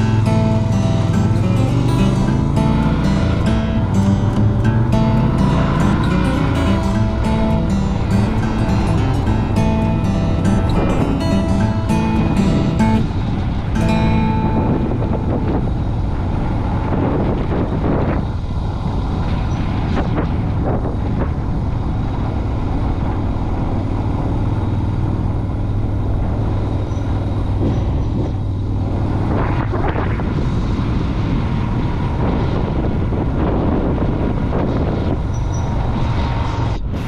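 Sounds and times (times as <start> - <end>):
motorcycle engine running: 0.0 - 17.6
wind and road noise: 0.0 - 37.0.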